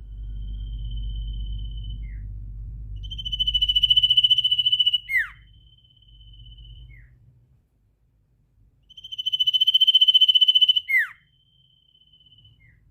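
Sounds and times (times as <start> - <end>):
low rumble: 0.0 - 8.8
songbird trilling: 3.0 - 7.2, 8.9 - 12.9.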